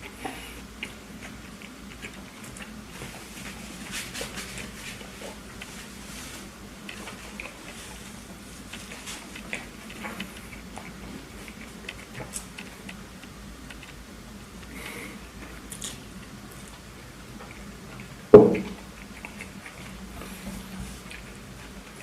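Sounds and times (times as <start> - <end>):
person chewing food: 0.0 - 22.0
loud thump: 18.4 - 18.7.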